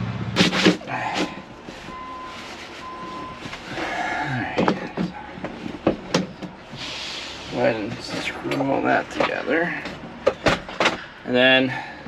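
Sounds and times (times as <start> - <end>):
rustling: 0.4 - 6.1.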